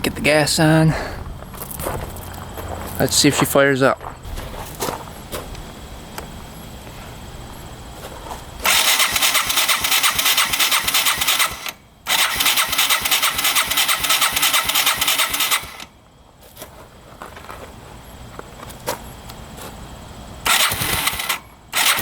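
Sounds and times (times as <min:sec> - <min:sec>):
electric starter cranking engine: 0:08.6 - 0:16.0, 0:20.4 - 0:22.0.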